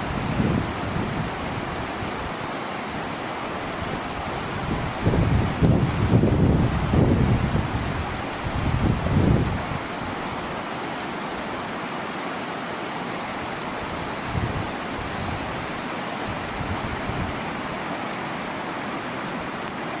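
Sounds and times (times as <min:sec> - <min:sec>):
wind buffeting microphone: 0:00.0 - 0:02.3, 0:03.8 - 0:09.9, 0:14.2 - 0:15.7.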